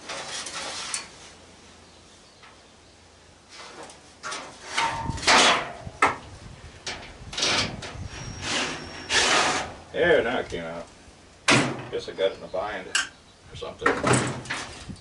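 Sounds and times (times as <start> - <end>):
sheet metal scraping and rattling: 3.5 - 5.9, 6.8 - 9.9, 13.9 - 15.0.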